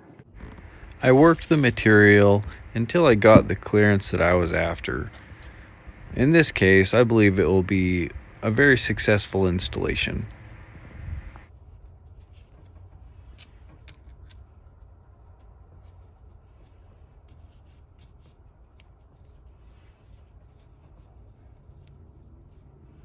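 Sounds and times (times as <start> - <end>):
low steady hum: 0.3 - 16.9
light handling clicks and rustles: 0.4 - 22.8.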